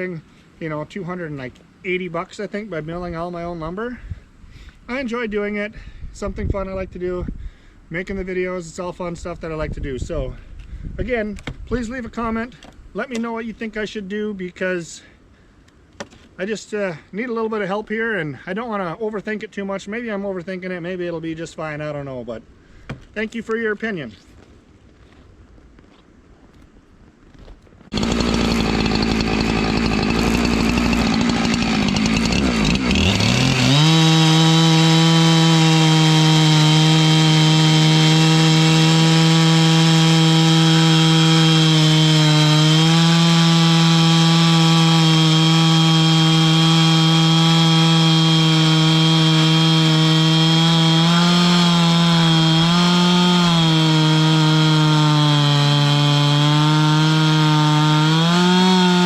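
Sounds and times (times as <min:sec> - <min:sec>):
chainsaw ripping a log: 0:27.9 - 0:59.0.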